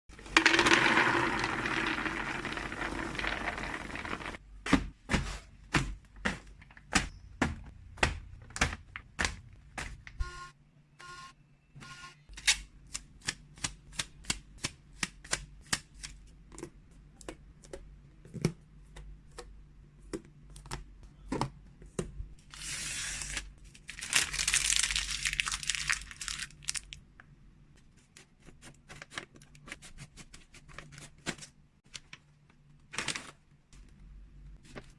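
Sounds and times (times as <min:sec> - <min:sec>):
plastic packaging crinkling: 0:23.2 - 0:27.0.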